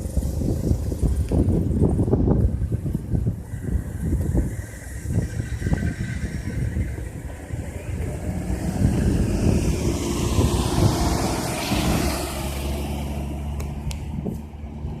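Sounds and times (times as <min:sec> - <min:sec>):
low engine hum: 0:00.0 - 0:15.0
vehicle passing whoosh: 0:03.2 - 0:15.0.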